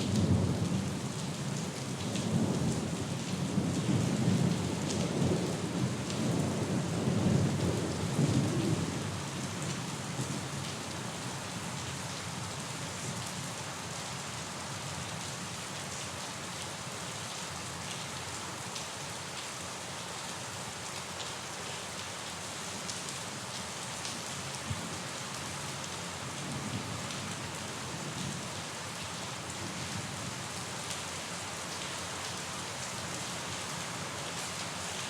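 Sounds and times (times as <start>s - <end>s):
steady rain falling: 0.0s - 35.0s
low rumble of thunder: 2.0s - 10.6s.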